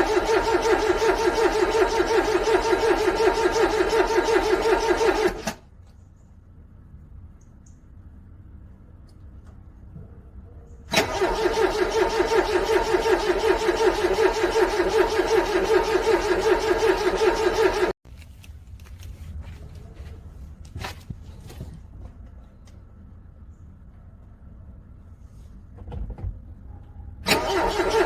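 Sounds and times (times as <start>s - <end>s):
car engine cranking: 0.0s - 5.6s, 10.9s - 18.0s, 27.2s - 28.0s.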